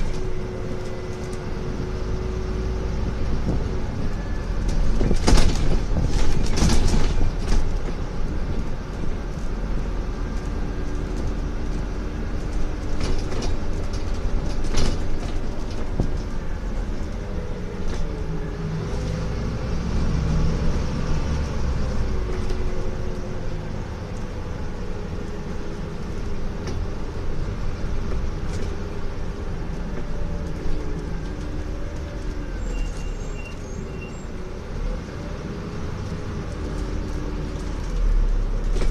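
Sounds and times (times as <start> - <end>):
bus diesel engine: 0.0 - 38.9
low road rumble: 0.0 - 38.9
knocks and body rattles: 3.1 - 18.3, 35.9 - 38.9.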